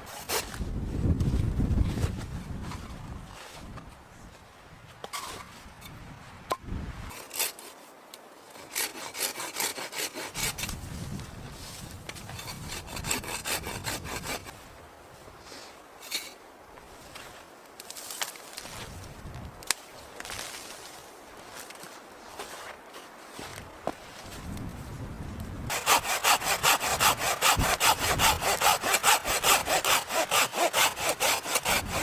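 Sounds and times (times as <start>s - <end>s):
hand saw cutting wood: 7.1s - 7.8s, 8.5s - 10.8s, 12.3s - 14.5s, 25.7s - 32.0s.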